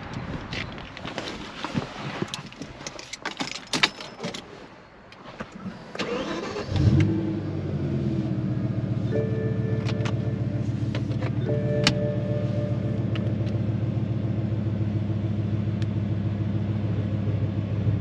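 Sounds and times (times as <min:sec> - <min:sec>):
car engine starting and idling: 0:05.2 - 0:18.0.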